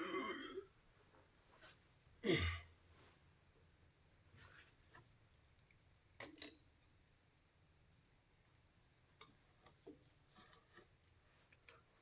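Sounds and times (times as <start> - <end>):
small clicks: 5.5 - 6.8.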